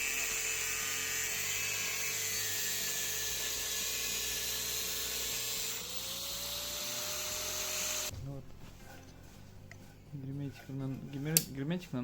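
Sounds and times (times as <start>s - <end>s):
power tool motor whining: 0.0s - 8.1s.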